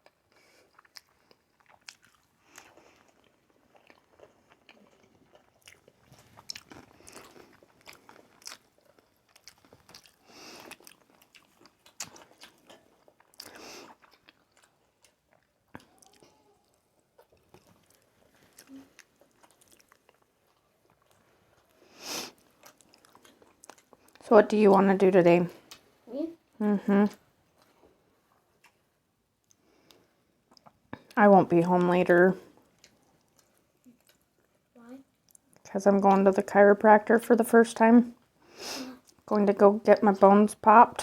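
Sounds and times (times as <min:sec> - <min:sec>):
chewing and biting food: 0:00.0 - 0:24.2, 0:27.5 - 0:31.2, 0:32.5 - 0:34.6.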